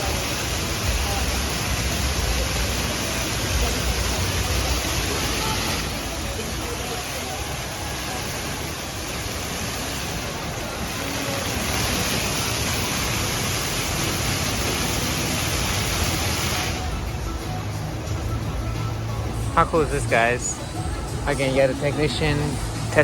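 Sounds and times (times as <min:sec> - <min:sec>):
fountain water jets splashing: 0:00.0 - 0:23.0.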